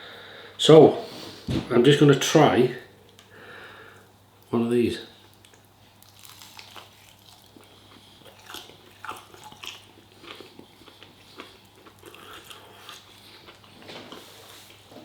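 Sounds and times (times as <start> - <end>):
person chewing food: 5.2 - 14.9.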